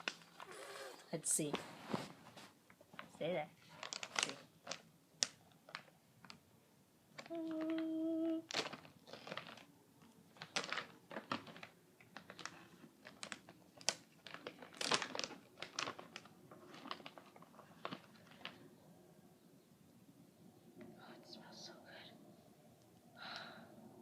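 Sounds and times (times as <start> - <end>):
snack pouch crinkling: 3.7 - 6.4, 7.2 - 9.7, 10.3 - 18.6.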